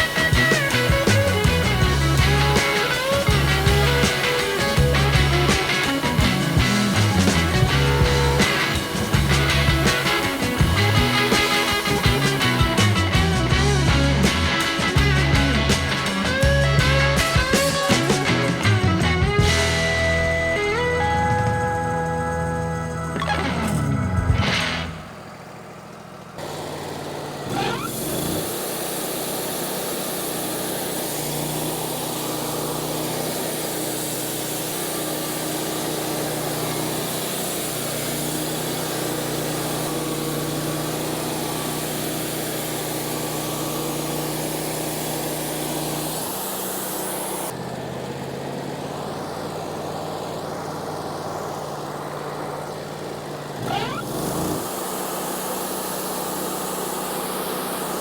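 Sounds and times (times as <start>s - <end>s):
band saw hissing through log: 0.0s - 20.2s, 26.4s - 47.6s, 53.5s - 58.0s
sawmill engine running: 0.0s - 58.0s.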